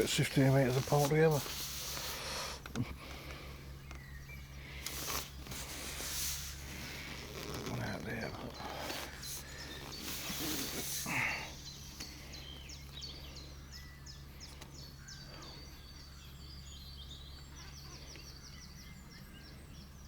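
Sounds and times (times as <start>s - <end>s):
rustling noise: 0.0s - 3.3s, 4.8s - 11.2s
small songbird singing: 0.0s - 20.0s.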